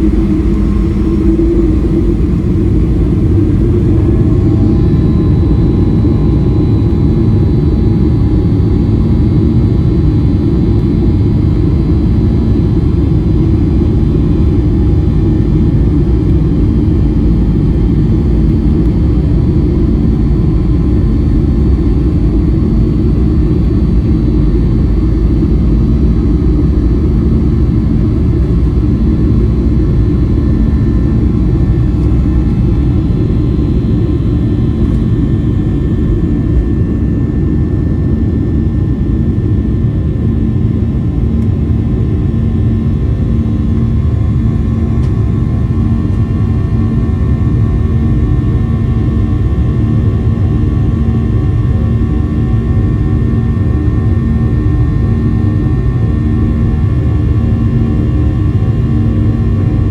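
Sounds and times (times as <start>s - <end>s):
faint whining tones: 0.0s - 8.7s, 23.4s - 38.5s
airplane cabin rumble: 0.0s - 59.9s.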